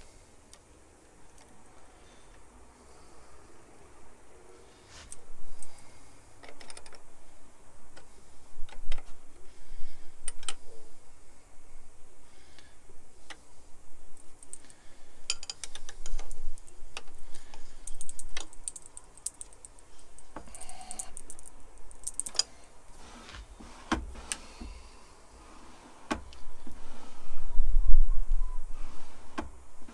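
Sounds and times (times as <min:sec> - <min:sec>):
metallic clicks of steel parts: 0:14.2 - 0:22.7.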